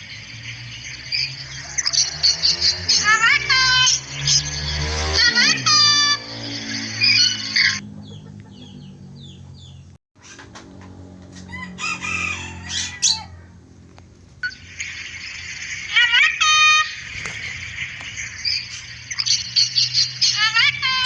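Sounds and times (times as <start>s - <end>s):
cockatoo calling and screeching: 11.4s - 13.7s.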